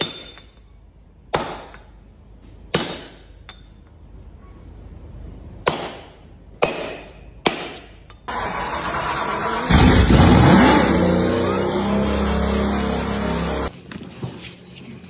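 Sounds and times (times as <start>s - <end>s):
sharp impacts: 9.7s - 13.7s.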